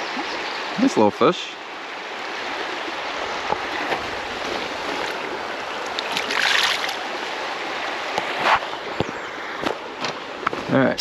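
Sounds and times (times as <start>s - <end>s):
creek water running: 0.0s - 11.0s
water splash: 3.4s - 7.1s.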